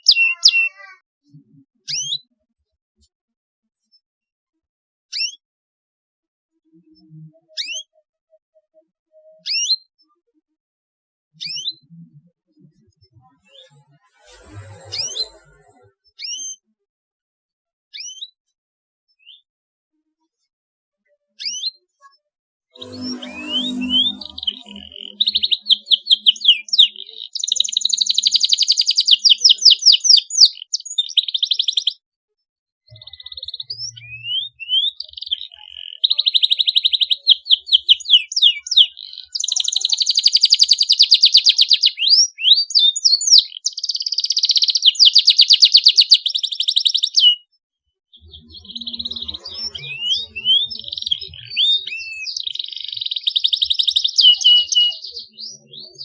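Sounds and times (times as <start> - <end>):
canary singing: 0.0 - 1.0, 1.9 - 2.3, 7.4 - 8.0, 22.8 - 32.0, 32.9 - 47.5, 48.1 - 56.0.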